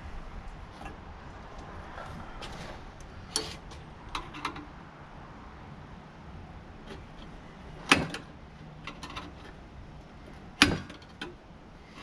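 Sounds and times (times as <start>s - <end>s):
tools and parts clicking: 3.3s - 4.7s, 6.9s - 9.6s.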